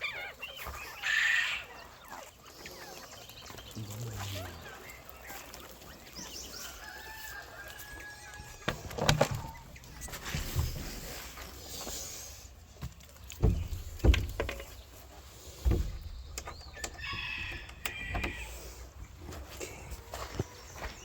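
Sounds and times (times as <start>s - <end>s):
dull knocks and thumps: 8.5s - 11.4s, 12.8s - 19.1s.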